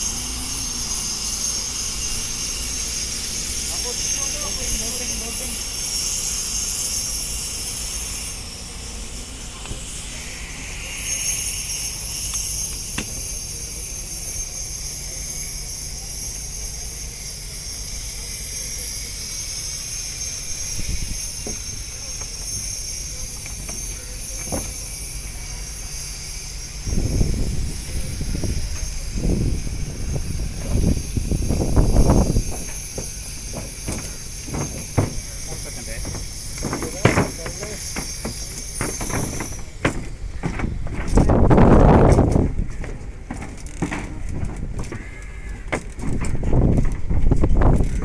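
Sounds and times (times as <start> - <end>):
high-pitched ringing hiss: 0.0 - 46.7
boat engine humming: 0.0 - 48.0
heavy low rumbles: 26.8 - 38.0.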